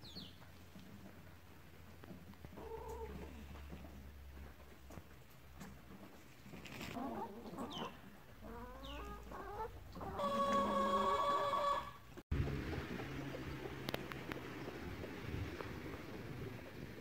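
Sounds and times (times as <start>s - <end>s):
chickens clucking: 2.5s - 4.0s, 6.1s - 12.2s.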